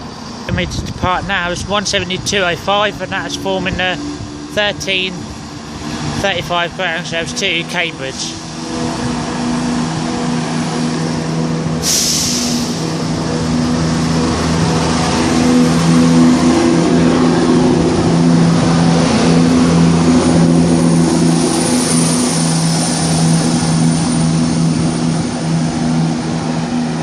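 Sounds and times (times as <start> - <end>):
train engine: 0.0 - 27.0
train brakes air hiss: 11.8 - 13.0.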